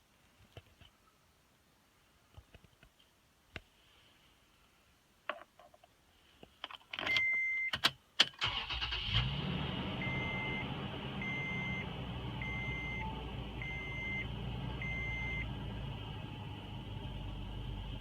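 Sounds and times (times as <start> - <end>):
warning chime beeping: 11.2 - 15.5.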